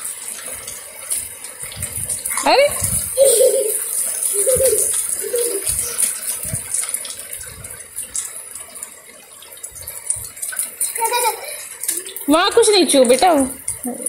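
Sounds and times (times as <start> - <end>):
rain on concrete roof: 0.0 - 14.0.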